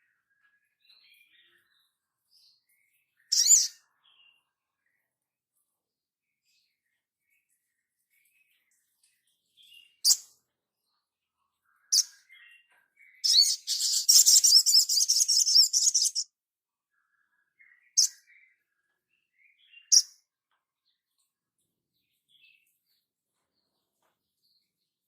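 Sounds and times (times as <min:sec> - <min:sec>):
high-pitched bird trill: 0:13.2 - 0:16.3
sharp high bird calls: 0:13.2 - 0:16.3.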